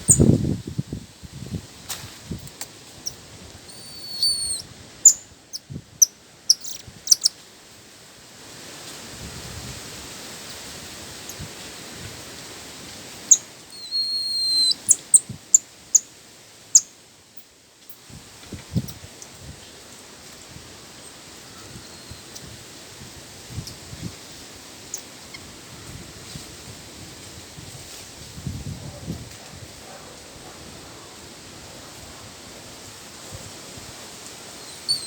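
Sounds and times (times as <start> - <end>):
bird whistling and chirping: 3.7 - 5.2, 6.5 - 7.3, 13.8 - 15.1, 34.6 - 35.0.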